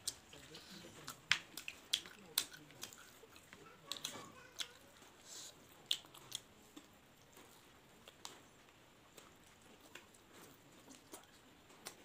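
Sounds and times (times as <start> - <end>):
people chewing crunchy food: 0.0 - 12.0.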